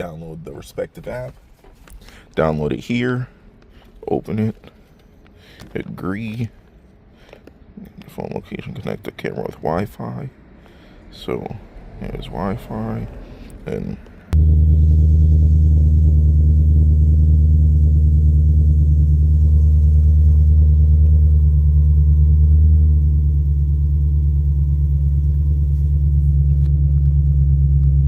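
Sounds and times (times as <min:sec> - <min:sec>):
car engine idling: 0:10.5 - 0:28.0.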